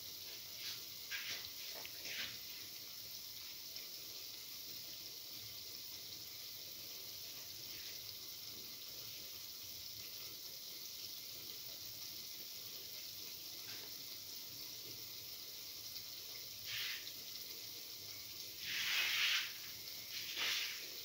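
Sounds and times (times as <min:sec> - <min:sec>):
batter sizzling in hot oil: 0:00.0 - 0:21.0
oil crackling: 0:18.6 - 0:21.0.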